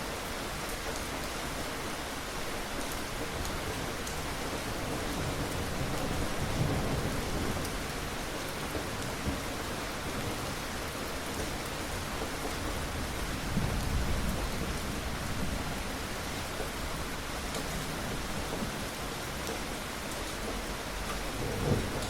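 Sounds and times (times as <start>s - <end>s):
heavy rain falling: 0.0s - 22.0s
distant thunder rumbling: 21.1s - 22.0s.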